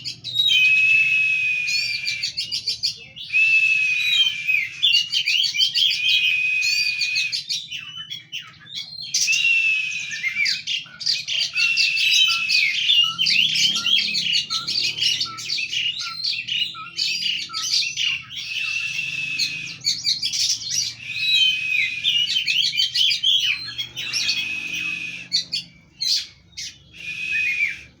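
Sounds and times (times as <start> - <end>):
magpie-robin singing: 0.0 - 28.0.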